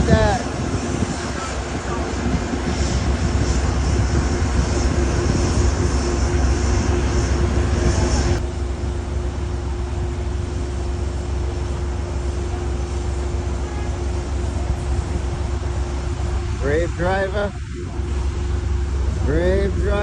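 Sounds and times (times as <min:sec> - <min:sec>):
vehicle engine rumble: 0:00.0 - 0:20.0.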